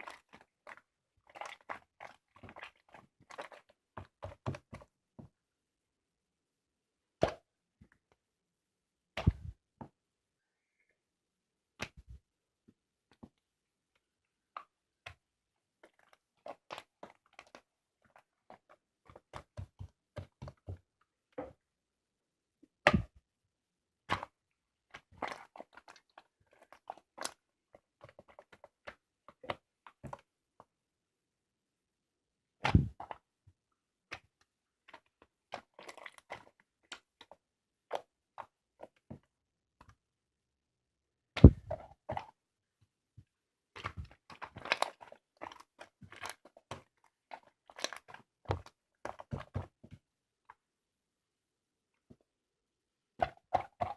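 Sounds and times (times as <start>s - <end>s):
slime squelching and popping: 0.0s - 5.0s, 9.1s - 9.6s, 14.4s - 21.6s, 24.0s - 30.3s, 32.6s - 33.4s, 34.0s - 39.2s, 41.4s - 42.4s, 43.7s - 50.1s, 53.2s - 53.9s.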